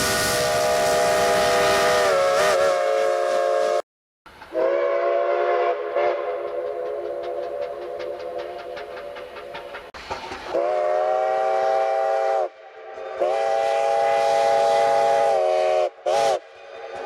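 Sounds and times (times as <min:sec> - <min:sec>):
steam locomotive chime whistle: 0:00.0 - 0:03.8, 0:04.5 - 0:08.7, 0:10.5 - 0:17.0.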